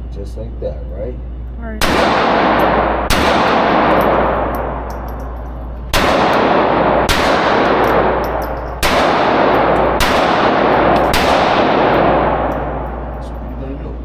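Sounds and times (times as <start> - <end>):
handgun shots: 1.8 - 5.2, 5.9 - 12.7
casings clinking: 2.5 - 6.6, 7.2 - 13.8.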